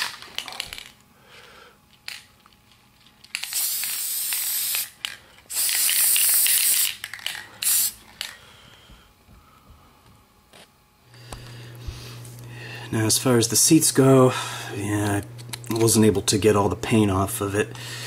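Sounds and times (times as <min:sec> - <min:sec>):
spray paint hissing: 0:03.4 - 0:08.0.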